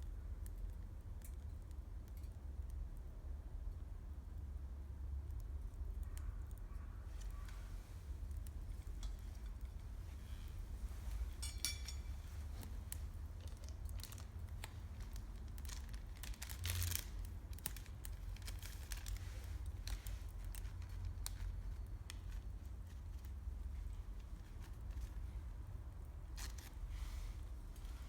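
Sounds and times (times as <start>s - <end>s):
campfire crackling: 3.7s - 25.4s.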